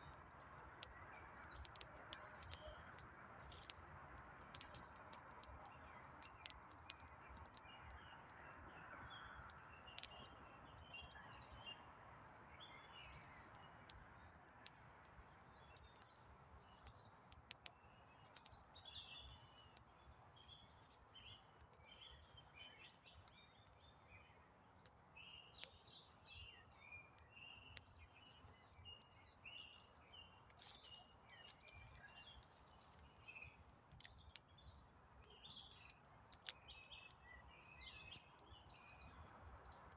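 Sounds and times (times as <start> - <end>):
small birds chirping: 0.0 - 39.9
campfire crackling: 0.1 - 8.8, 9.4 - 11.1, 16.8 - 20.8, 27.1 - 37.3.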